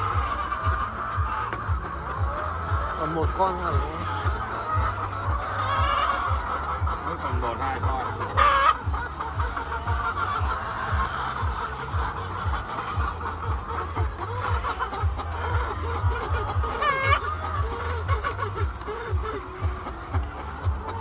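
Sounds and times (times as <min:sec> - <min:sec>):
hens clucking: 0:00.0 - 0:21.0
loud high hen call: 0:16.7 - 0:18.6.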